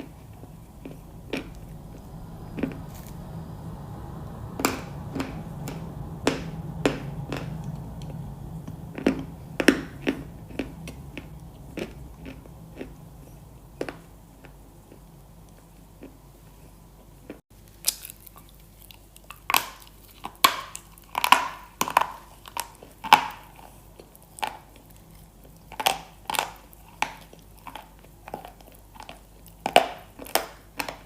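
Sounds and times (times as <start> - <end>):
low steady hum: 0.0 - 17.4.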